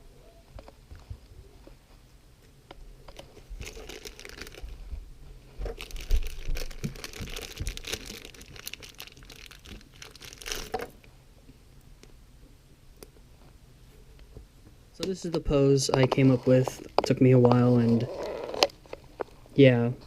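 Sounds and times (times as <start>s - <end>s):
plastic parts and packaging crinkling: 3.1s - 4.9s, 5.6s - 11.0s, 16.1s - 19.3s.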